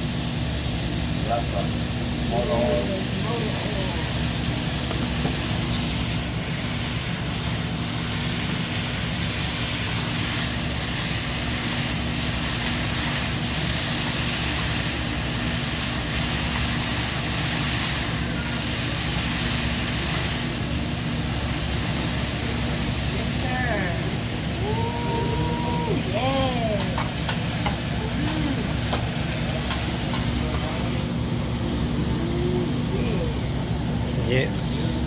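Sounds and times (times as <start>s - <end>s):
food sizzling on hot griddle: 0.0s - 33.9s
exhaust hood fan hum: 0.0s - 35.0s.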